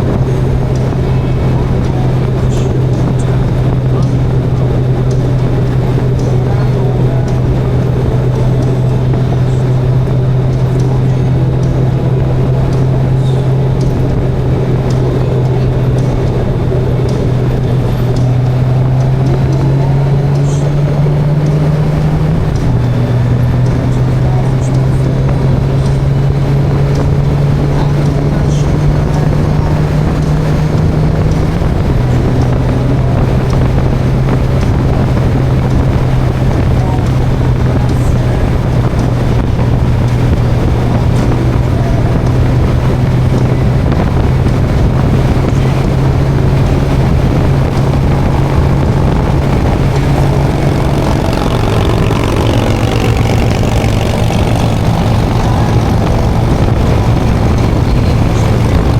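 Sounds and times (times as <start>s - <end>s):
motorcycle engine cruising: 0.0s - 58.9s
wind rushing over microphone: 0.0s - 58.9s.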